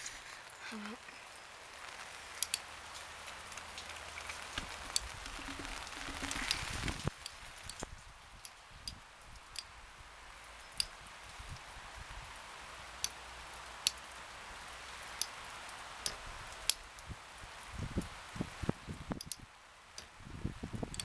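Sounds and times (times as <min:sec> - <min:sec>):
rain falling: 0:00.0 - 0:21.0
raindrops ticking: 0:00.1 - 0:18.2, 0:18.9 - 0:21.0.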